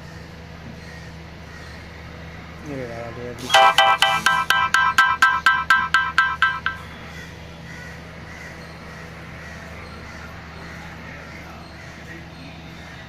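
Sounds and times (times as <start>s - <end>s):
electronic ringtone beeping: 3.5s - 6.9s.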